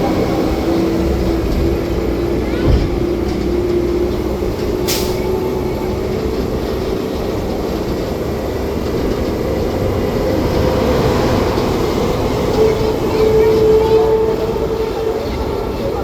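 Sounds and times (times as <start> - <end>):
tram running gear rumbling on road: 0.0 - 16.0.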